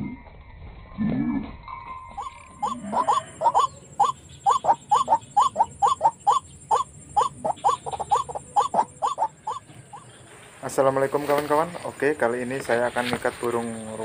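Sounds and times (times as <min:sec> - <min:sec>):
waterhen calling: 0:02.1 - 0:10.4.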